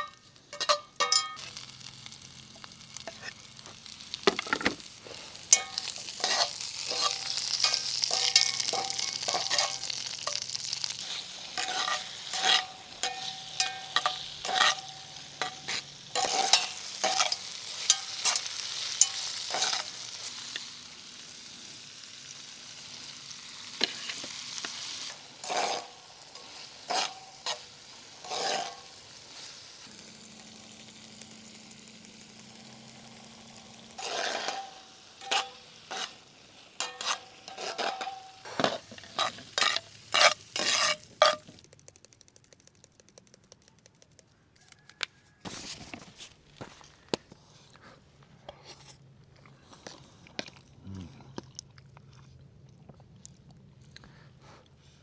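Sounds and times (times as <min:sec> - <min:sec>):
utensil clinking against pan: 0:00.0 - 0:01.5, 0:05.5 - 0:10.6, 0:11.6 - 0:19.9, 0:36.8 - 0:41.5
utensil scraping a pan: 0:00.0 - 0:01.6, 0:04.3 - 0:20.4, 0:23.8 - 0:29.0, 0:34.0 - 0:36.2, 0:36.8 - 0:41.6
food sizzling in a frying pan: 0:00.0 - 0:41.6
scattered clicks: 0:41.6 - 0:45.1.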